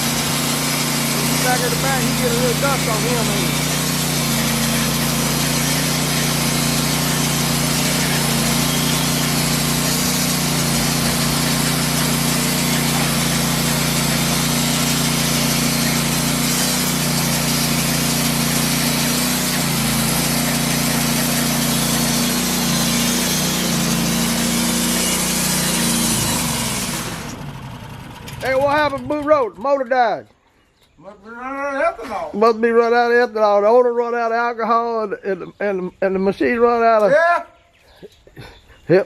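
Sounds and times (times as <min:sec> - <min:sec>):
band blade sawing wood: 0:00.0 - 0:27.7
gasoline engine running under load: 0:00.0 - 0:29.9.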